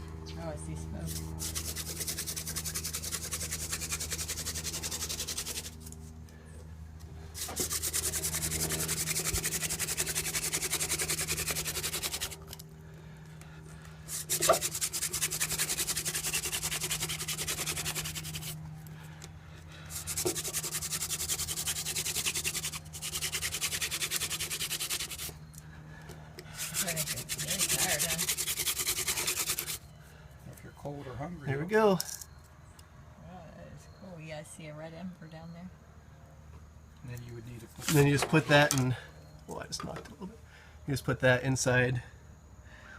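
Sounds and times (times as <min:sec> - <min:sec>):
wooden spindle grinding into board: 0:01.4 - 0:05.9, 0:07.4 - 0:12.6, 0:14.1 - 0:18.6, 0:19.9 - 0:25.4, 0:26.5 - 0:29.8.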